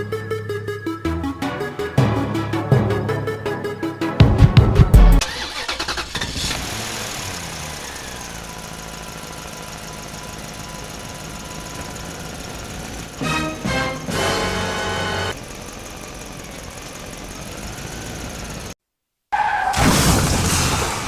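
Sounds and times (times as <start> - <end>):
engine cranking and idling: 4.9 - 18.8.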